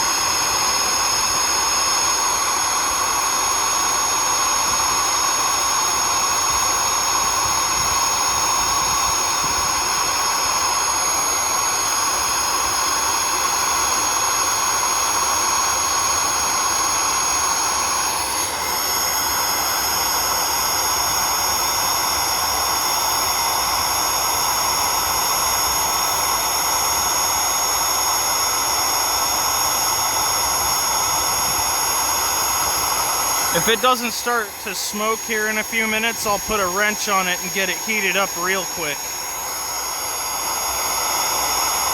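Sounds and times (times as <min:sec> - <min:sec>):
vacuum cleaner motor whining: 0:00.0 - 0:21.6, 0:29.5 - 0:41.9.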